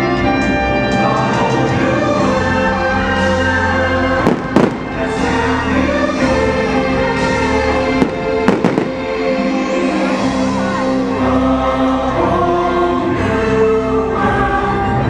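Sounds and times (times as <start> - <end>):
orchestral show music: 0.0 - 15.0
fireworks bursting: 4.2 - 5.7, 7.9 - 9.5.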